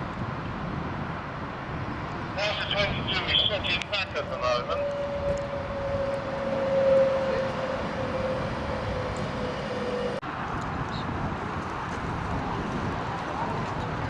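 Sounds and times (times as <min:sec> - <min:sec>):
train passing with whine: 0:01.9 - 0:10.2.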